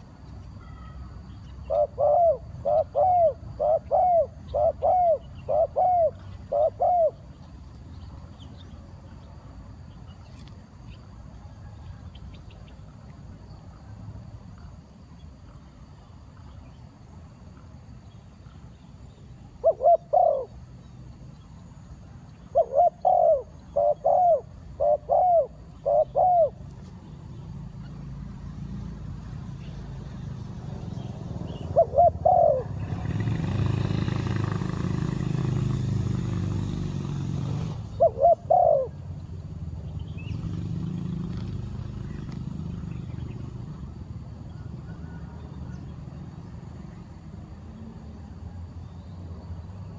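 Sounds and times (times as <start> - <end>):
dove cooing: 0.6 - 7.3, 19.5 - 20.8, 22.5 - 26.7, 31.3 - 35.3, 37.7 - 39.1.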